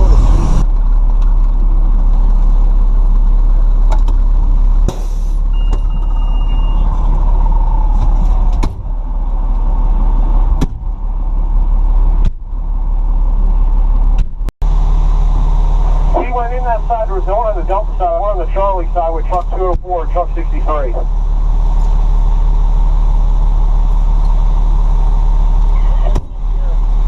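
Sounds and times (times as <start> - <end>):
fire truck engine rumble: 0.0 - 27.0
short high beep: 5.5 - 6.9.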